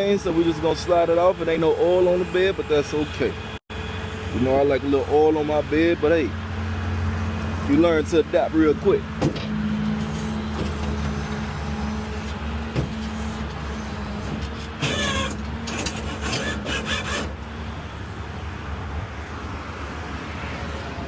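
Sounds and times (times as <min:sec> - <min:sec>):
tow truck humming: 0:00.0 - 0:21.0
car scraping and squealing on steel: 0:08.8 - 0:17.4.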